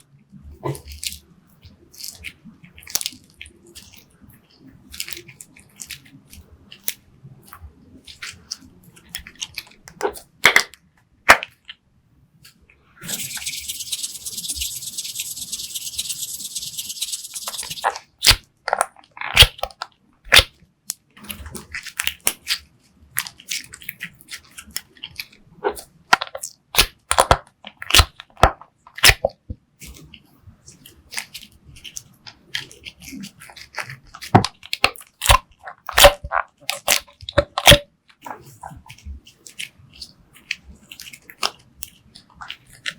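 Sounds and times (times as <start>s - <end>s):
steady high hiss: 13.0s - 17.9s
slime popping and crackling: 13.0s - 20.6s, 23.2s - 30.1s, 30.7s - 42.9s.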